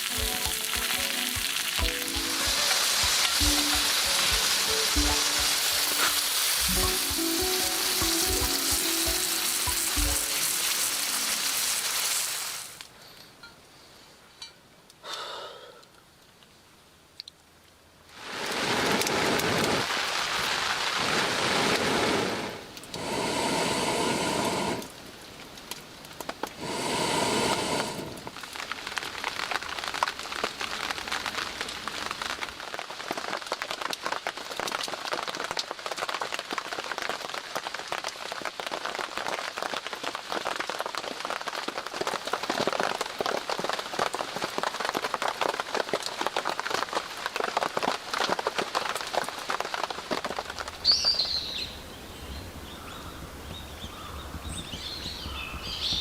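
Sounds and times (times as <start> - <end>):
rain pattering: 0.0 - 12.9, 16.2 - 23.3, 24.2 - 56.0
rushing noise: 1.7 - 12.7.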